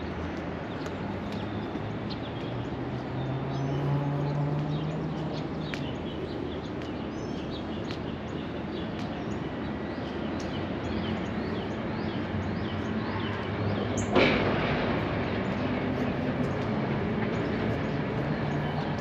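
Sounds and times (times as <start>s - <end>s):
small birds chirping: 0.0s - 14.2s, 15.0s - 19.0s
low outdoor hum: 0.0s - 19.0s.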